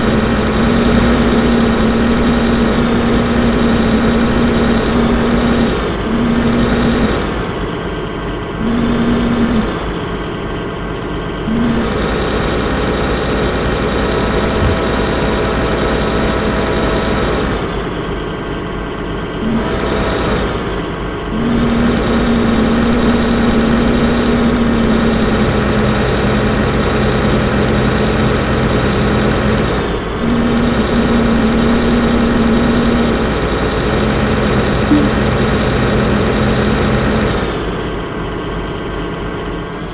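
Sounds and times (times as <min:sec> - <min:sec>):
excavator engine running: 0:00.0 - 0:07.4, 0:08.5 - 0:10.0, 0:11.2 - 0:13.0, 0:13.7 - 0:17.3, 0:21.3 - 0:37.5, 0:39.3 - 0:39.9.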